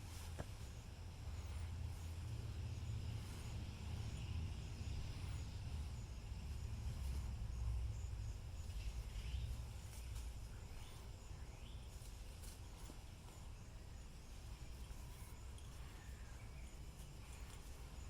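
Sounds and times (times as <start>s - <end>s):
low rumble: 0.0s - 12.4s.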